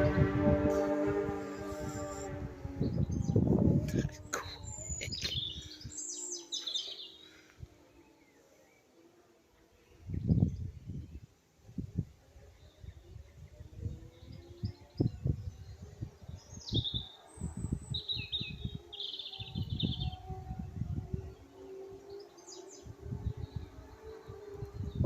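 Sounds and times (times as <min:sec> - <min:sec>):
low rumble: 0:00.0 - 0:05.8
small birds chirping: 0:01.4 - 0:08.9, 0:12.3 - 0:25.0.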